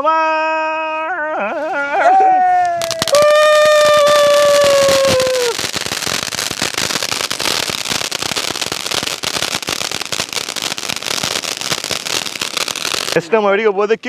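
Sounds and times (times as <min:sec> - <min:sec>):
firecracker crackling: 0:01.6 - 0:13.4
firecracker whistle dropping in pitch: 0:02.7 - 0:13.2.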